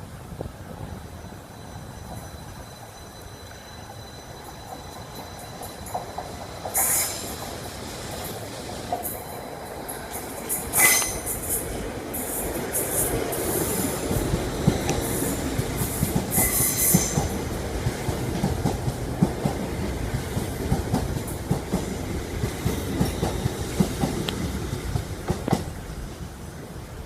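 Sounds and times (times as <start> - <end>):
train rumble: 0.0 - 27.0
train wheels squealing: 1.0 - 17.6
train wheels clicking: 1.9 - 26.0.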